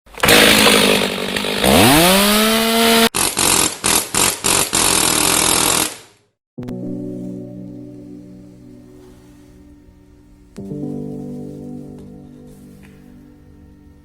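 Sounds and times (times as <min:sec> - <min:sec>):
power tool motor: 0:00.2 - 0:06.2
music: 0:06.6 - 0:14.0.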